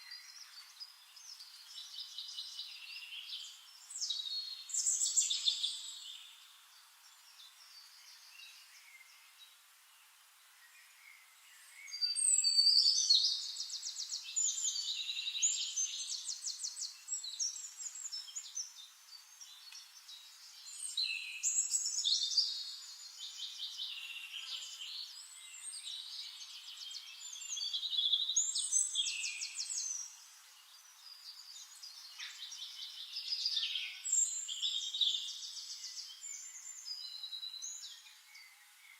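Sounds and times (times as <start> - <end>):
songbirds trilling: 10.8 - 38.9.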